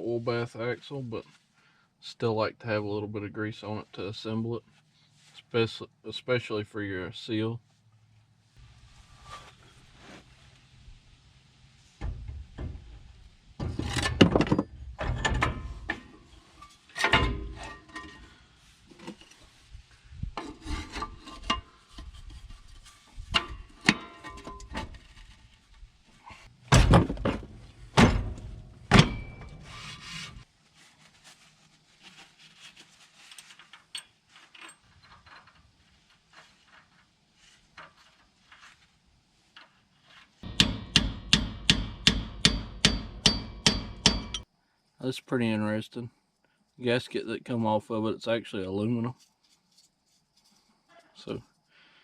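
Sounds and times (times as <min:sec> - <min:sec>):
metal parts scraping and knocking: 0:12.0 - 0:19.5, 0:20.4 - 0:25.8, 0:26.9 - 0:30.4, 0:33.2 - 0:38.8.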